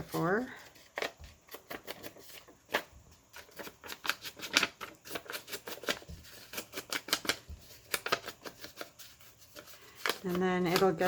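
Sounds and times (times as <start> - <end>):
paper taps and rustles: 3.4 - 9.0.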